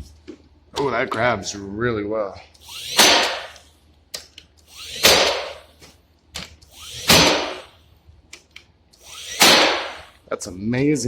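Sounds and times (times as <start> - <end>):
nail gun firing: 2.7 - 3.7, 4.8 - 5.6, 6.4 - 7.8, 9.0 - 10.2.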